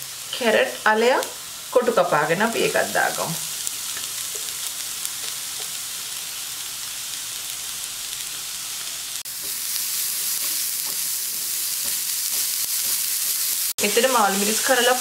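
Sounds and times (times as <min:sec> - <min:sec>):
vegetables sizzling in hot oil: 0:00.0 - 0:15.0
spatula stirring in a pan: 0:08.1 - 0:13.7.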